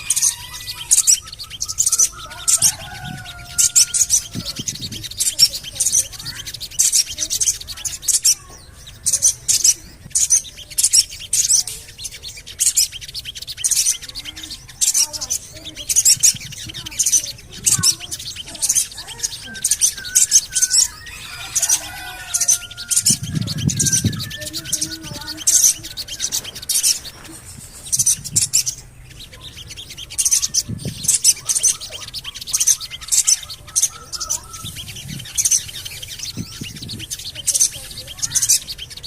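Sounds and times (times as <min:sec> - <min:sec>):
bird calling sharp high notes: 0:00.0 - 0:39.0
soft bird twittering: 0:00.0 - 0:39.0.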